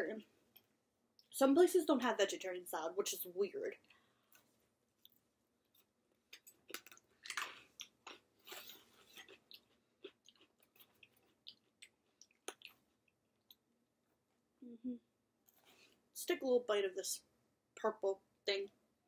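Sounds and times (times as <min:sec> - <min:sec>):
person chewing crisp salad: 0:05.0 - 0:13.7.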